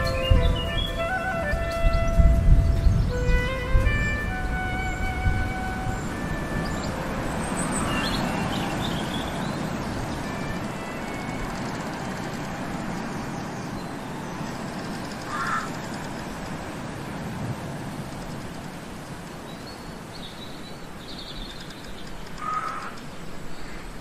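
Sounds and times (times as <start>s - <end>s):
loud bird call: 0.0s - 12.7s, 15.2s - 15.8s
outdoor background noise: 0.0s - 24.0s.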